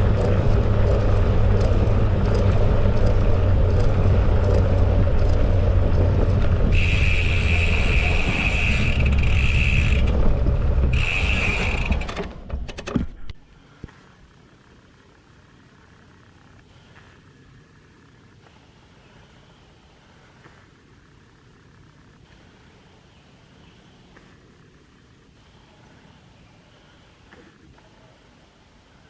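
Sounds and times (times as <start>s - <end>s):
bicycle freewheel buzzing: 0.0s - 12.2s, 14.0s - 23.0s
bicycle tyre rumble: 0.0s - 26.1s
wind: 0.0s - 29.0s.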